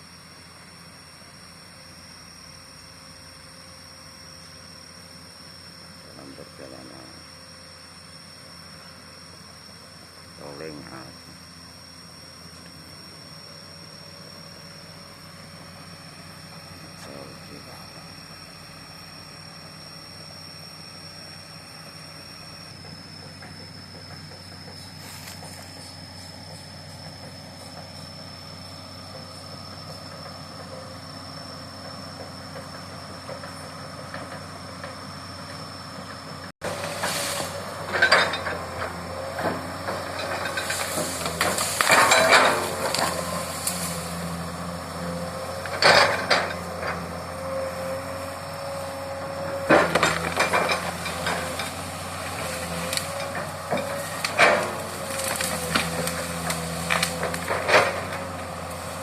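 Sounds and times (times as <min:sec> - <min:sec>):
diesel engine hum: 0:00.0 - 0:59.0
wavering whine: 0:00.0 - 0:59.0
metallic track clanks and squeals: 0:31.8 - 0:59.0.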